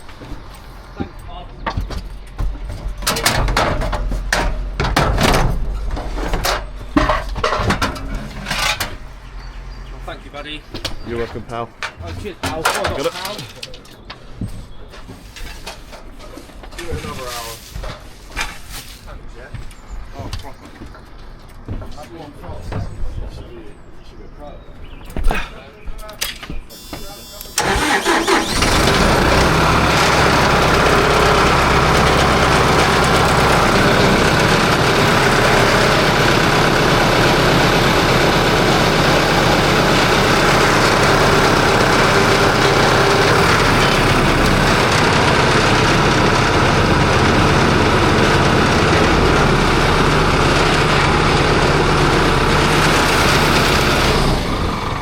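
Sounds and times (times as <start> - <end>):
large engine running: 27.6 - 55.0.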